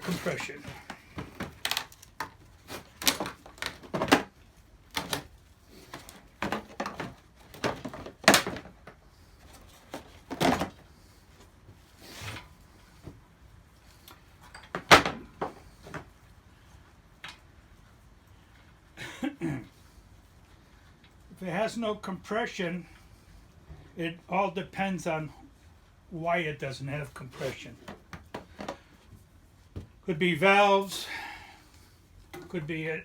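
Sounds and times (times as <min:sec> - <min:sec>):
metal tools clattering on workbench: 0:14.4 - 0:15.1.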